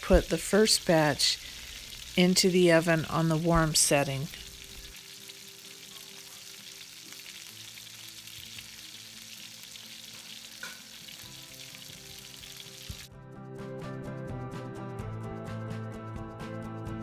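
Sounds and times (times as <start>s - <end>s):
steaks sizzling in hot oil: 0.0s - 13.1s.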